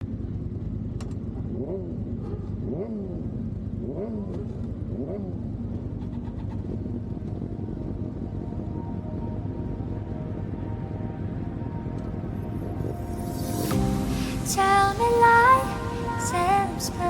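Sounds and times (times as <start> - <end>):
motorbike engine idling and revving: 0.0 - 8.7.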